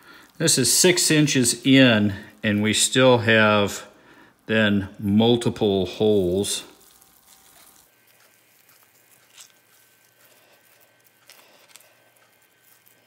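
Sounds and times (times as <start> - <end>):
cooked meat squishing and tearing: 6.5 - 13.0.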